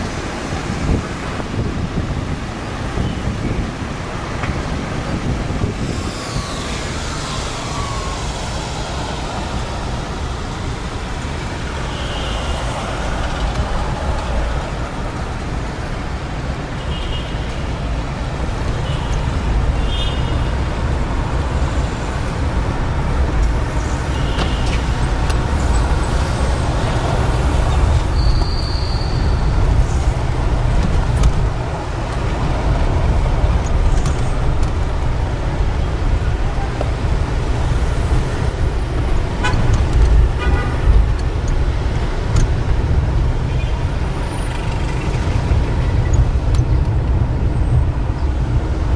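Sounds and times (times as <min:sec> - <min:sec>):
low vehicle rumble: 0:03.5 - 0:16.8.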